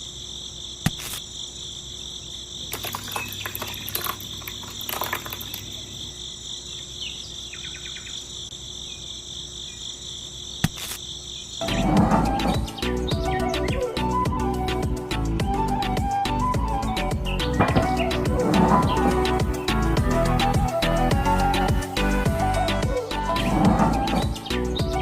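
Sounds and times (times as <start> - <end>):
insects chirring: 0.0 - 11.8.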